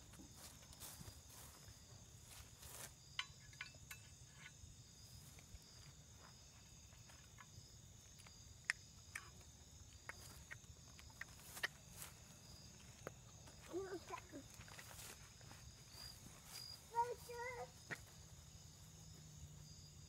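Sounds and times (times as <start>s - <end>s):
high-pitched insect whine: 0.3s - 20.0s.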